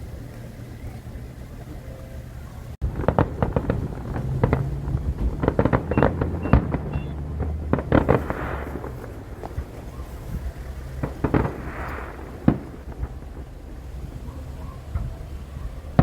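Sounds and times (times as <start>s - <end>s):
crackling fireworks shower: 0.0s - 16.0s
fireworks bangs: 0.0s - 16.0s.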